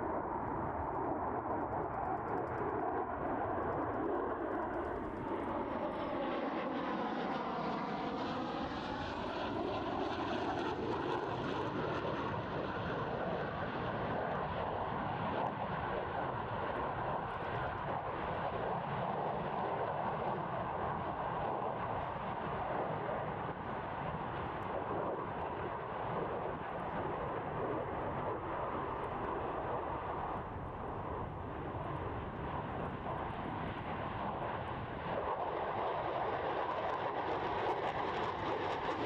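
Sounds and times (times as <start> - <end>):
jet engines in flight: 0.0 - 39.0.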